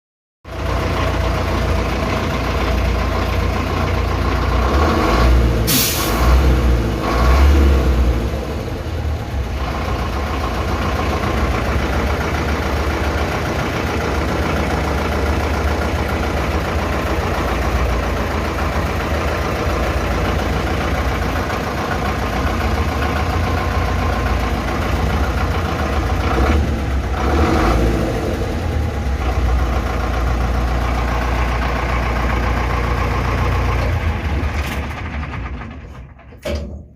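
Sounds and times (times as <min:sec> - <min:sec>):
diesel truck engine idling and revving: 0:00.4 - 0:36.9
short sharp hiss or clatter: 0:05.7 - 0:06.2.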